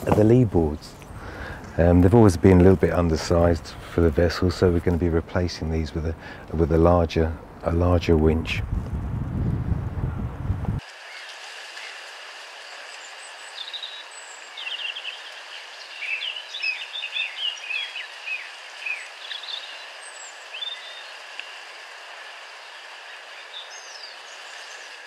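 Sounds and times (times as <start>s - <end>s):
birds chirping: 0.0s - 8.6s, 11.0s - 25.0s
steady outdoor hiss: 0.0s - 25.0s.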